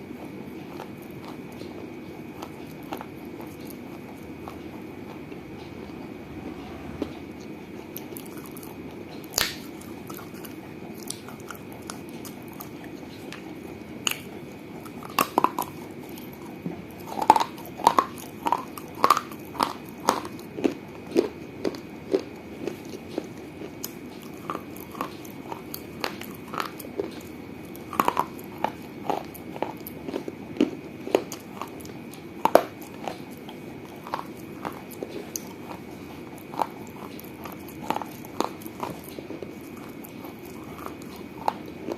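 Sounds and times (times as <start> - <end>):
teeth crunching clay: 0.6 - 5.7, 7.9 - 41.9.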